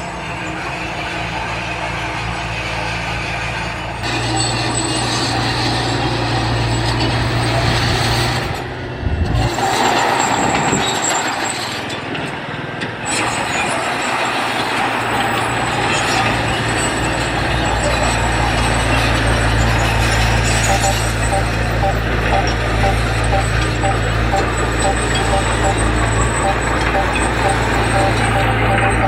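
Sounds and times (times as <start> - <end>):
heavy diesel machinery engine drone: 15.1 - 29.0.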